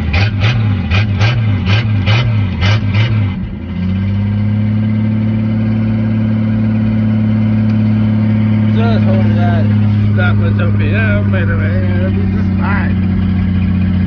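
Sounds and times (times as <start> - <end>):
truck engine idling unevenly: 5.7 - 14.0.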